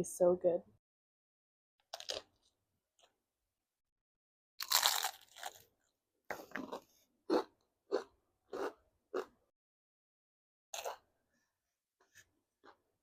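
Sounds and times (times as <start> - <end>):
person chewing crunchy food: 1.8 - 3.2, 4.6 - 9.4, 10.7 - 11.1.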